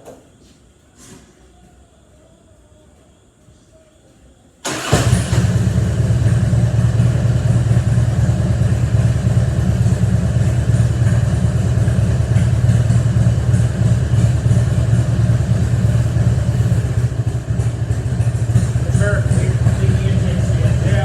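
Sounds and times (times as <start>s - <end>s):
motorcycle engine starting and idling: 4.6s - 21.0s.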